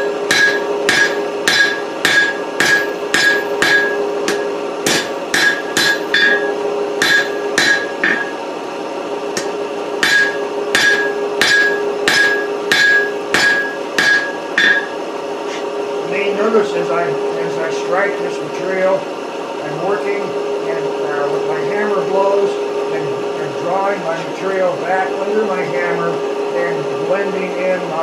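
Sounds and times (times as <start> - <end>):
hammer striking steel on anvil: 0.0 - 8.4, 9.4 - 15.6.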